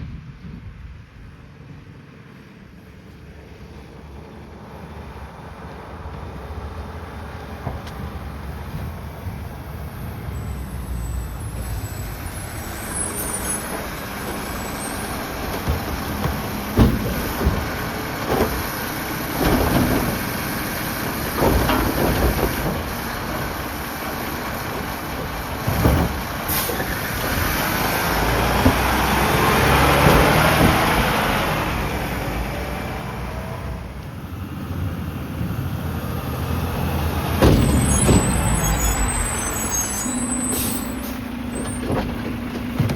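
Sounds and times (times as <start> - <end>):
diesel engine running: 1.2 - 42.9
sharp bangs and knocks: 13.6 - 31.4, 37.2 - 42.9.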